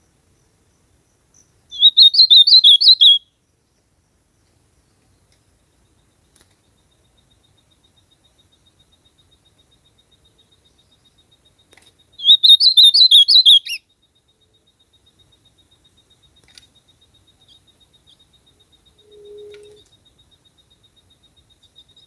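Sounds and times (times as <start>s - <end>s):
bird warbling whistled song: 1.7s - 3.3s, 12.2s - 13.8s, 19.0s - 19.9s.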